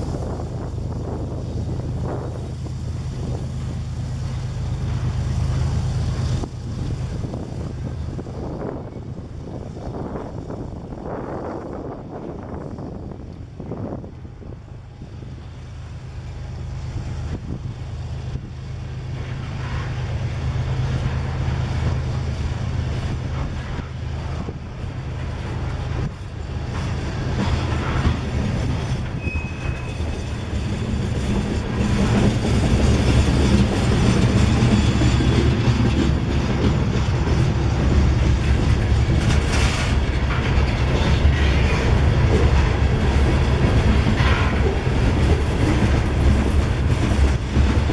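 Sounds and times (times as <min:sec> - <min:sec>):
locomotive engine drone: 0:00.0 - 0:47.9
high squeal: 0:27.4 - 0:32.0.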